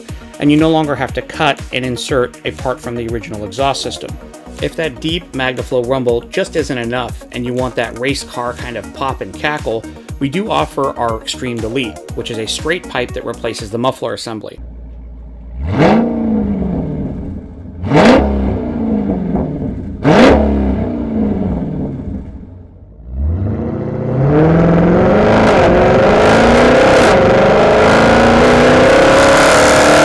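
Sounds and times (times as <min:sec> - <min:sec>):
car engine revving: 0:14.6 - 0:30.0.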